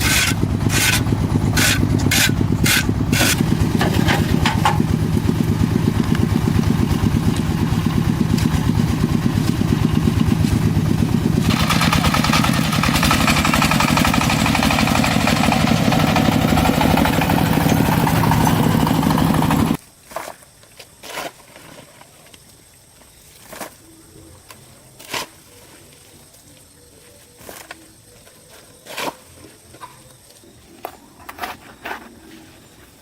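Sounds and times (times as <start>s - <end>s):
engine running with pulsing beat: 0.0s - 19.8s.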